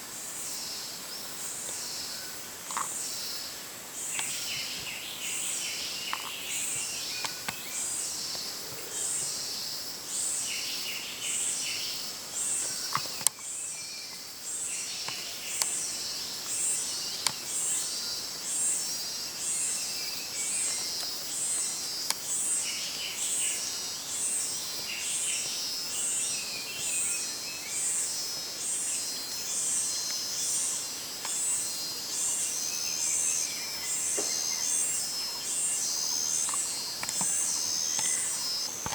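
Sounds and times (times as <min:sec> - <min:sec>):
insects droning in pulses: 0:00.1 - 0:38.9
birds chirping: 0:32.1 - 0:38.9.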